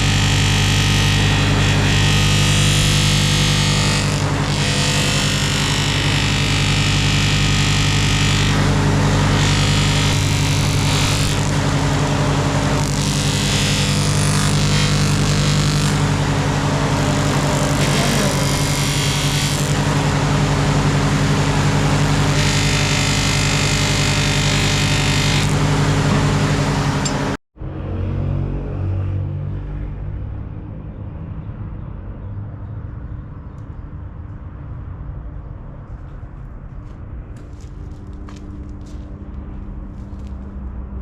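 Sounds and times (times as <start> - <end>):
motor humming: 0.0 - 27.4.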